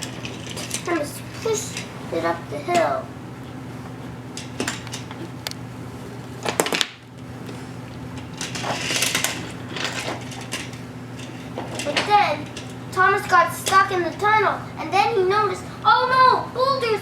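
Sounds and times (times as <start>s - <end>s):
toy trains clattering: 0.0s - 3.0s, 8.2s - 16.7s
steady low hum: 0.0s - 17.0s
scraping rustle: 7.5s - 12.9s
wooden toy trains clicking: 8.3s - 14.0s.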